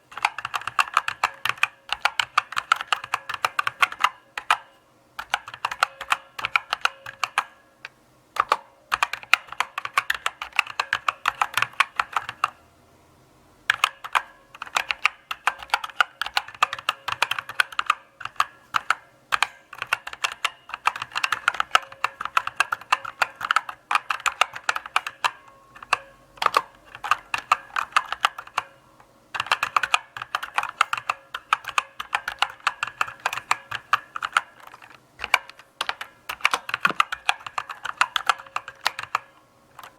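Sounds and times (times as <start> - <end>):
mechanical keyboard clicks: 0.1 - 7.6, 8.4 - 12.6, 13.7 - 28.8, 29.4 - 39.9.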